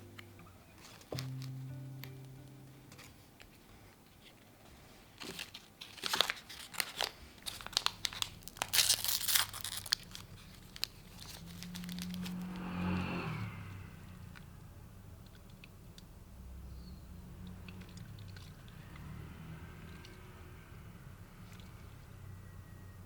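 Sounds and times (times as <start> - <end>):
crinkling and crackling: 0.2 - 2.3, 2.9 - 12.4
low hum: 10.8 - 15.4.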